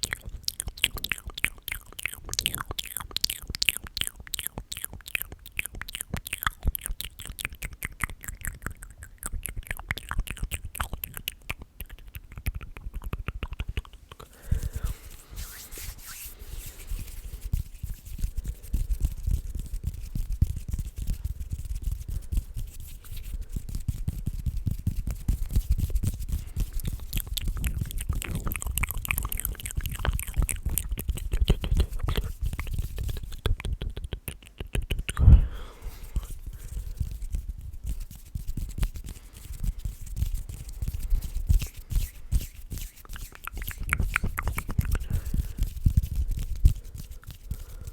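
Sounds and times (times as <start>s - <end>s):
wet mouth clicks: 0.0s - 47.9s.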